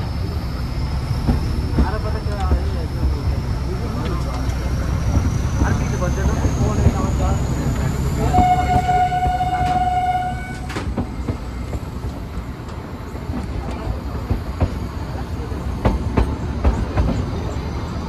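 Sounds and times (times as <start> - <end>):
train rumbling: 0.0 - 18.0
train horn: 8.2 - 10.8.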